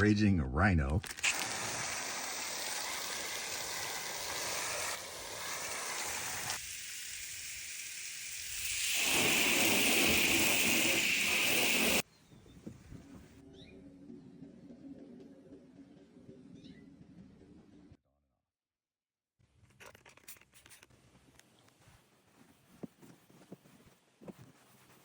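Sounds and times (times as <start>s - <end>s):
water spraying: 1.1s - 12.0s.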